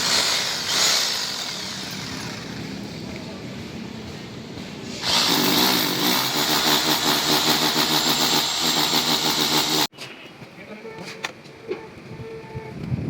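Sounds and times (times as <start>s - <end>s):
electric power tool running: 0.0s - 2.7s, 5.0s - 9.9s.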